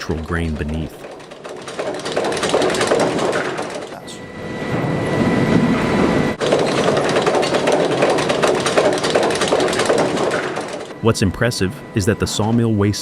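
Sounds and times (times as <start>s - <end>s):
log debarker rattling: 0.0s - 4.0s, 6.4s - 11.0s.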